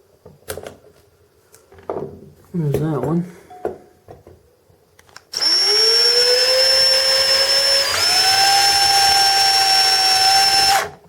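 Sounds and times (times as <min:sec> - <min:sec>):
electric drill whining: 0:05.3 - 0:11.0.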